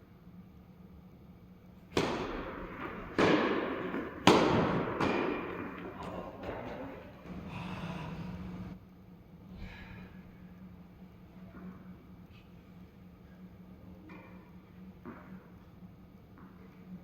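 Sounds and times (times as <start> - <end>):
tennis ball hits: 1.9 - 7.5.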